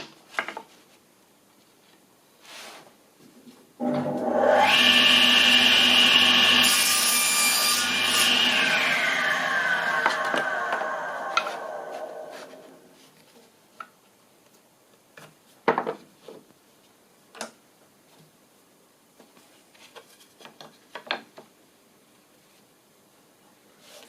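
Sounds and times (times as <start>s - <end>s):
knocks of tools and timber: 9.9s - 12.6s, 15.2s - 16.4s.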